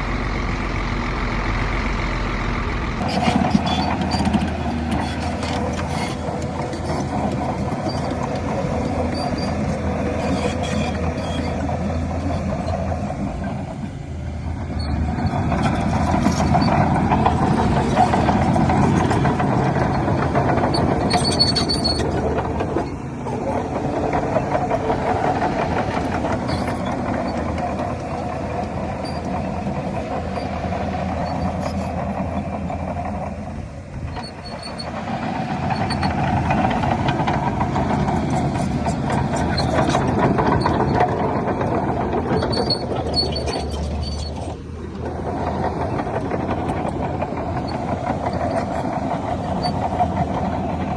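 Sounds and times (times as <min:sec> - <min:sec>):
heavy diesel machinery running: 0:00.0 - 0:50.9.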